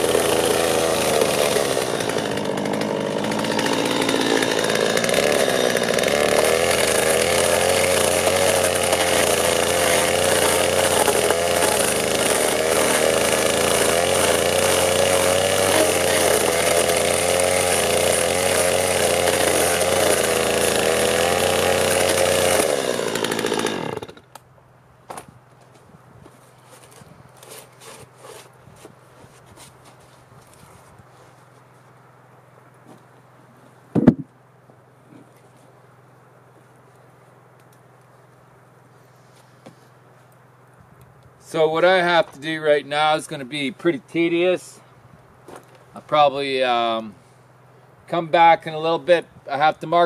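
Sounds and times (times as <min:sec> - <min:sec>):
power tool motor cutting wood: 0:00.0 - 0:24.3, 0:26.7 - 0:29.0.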